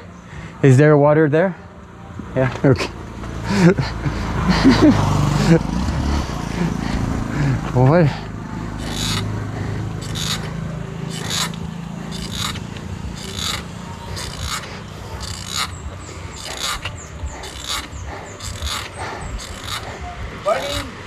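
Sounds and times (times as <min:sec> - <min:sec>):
short scraping strokes: 0:08.6 - 0:21.0.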